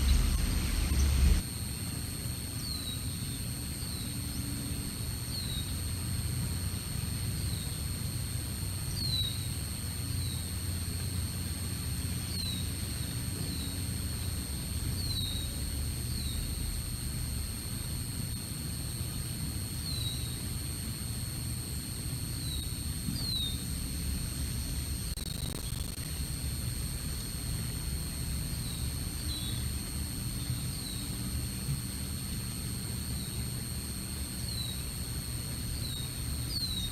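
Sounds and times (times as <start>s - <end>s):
low rumble: 0.0s - 1.4s
faint high-pitched whine: 0.0s - 36.9s
small bird chirping: 25.2s - 26.1s.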